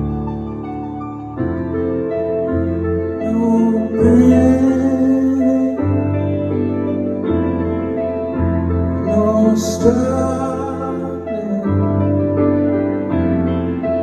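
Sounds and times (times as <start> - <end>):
sustained keyboard chords: 0.0 - 14.0
man singing: 3.2 - 6.4, 9.0 - 12.3.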